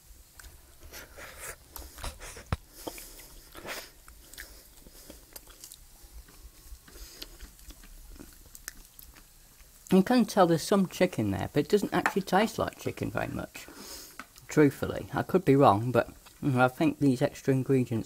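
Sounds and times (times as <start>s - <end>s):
person chewing food: 0.3s - 9.9s.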